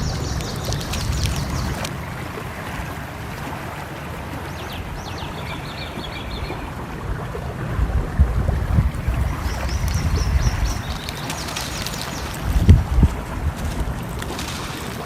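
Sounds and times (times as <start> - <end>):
small birds chirping: 0.0 - 1.9, 4.3 - 6.8, 8.8 - 13.2
stream flowing: 0.0 - 15.0.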